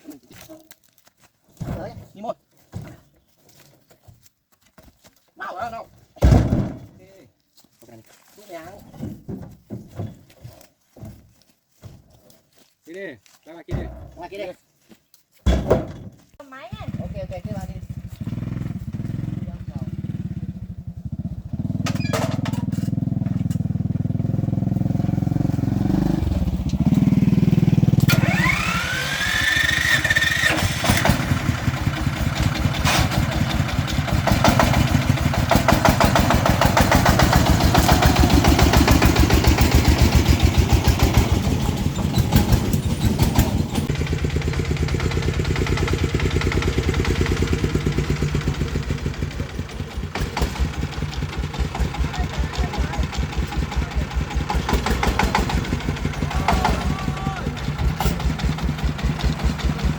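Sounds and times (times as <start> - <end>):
truck engine chugging: 16.5 - 59.9
rising engine whine: 21.8 - 31.5.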